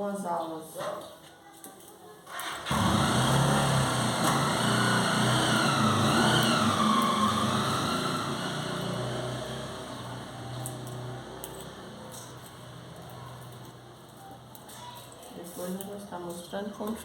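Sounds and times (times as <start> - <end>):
vehicle engine running: 2.6 - 14.1.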